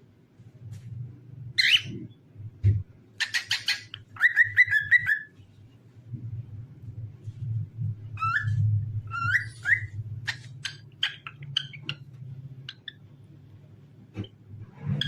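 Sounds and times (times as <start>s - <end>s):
cockatiel whistling: 3.2s - 5.3s, 8.2s - 10.4s
steady low hum: 5.3s - 15.0s.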